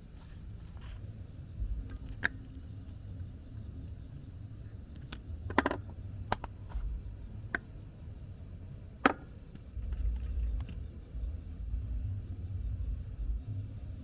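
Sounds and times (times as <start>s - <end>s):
low rumble: 9.7s - 14.0s.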